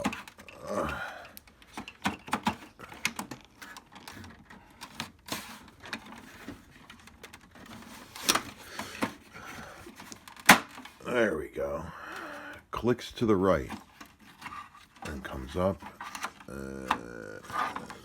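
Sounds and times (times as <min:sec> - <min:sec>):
plastic clicks and knocks: 0:01.2 - 0:11.0.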